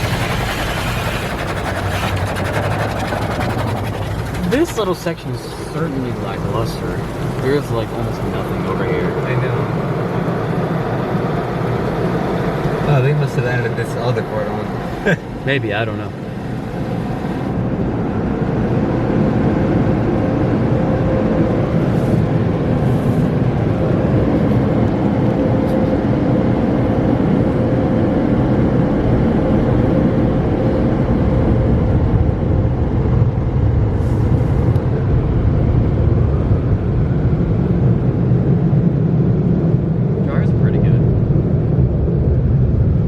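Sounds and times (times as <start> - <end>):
car wash rushing noise: 0.0 - 19.5, 20.7 - 25.3.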